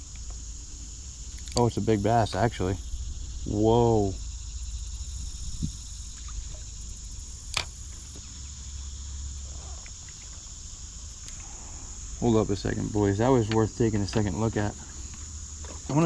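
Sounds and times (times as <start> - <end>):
low rumble: 0.0 - 9.8
insect chorus: 0.0 - 16.0.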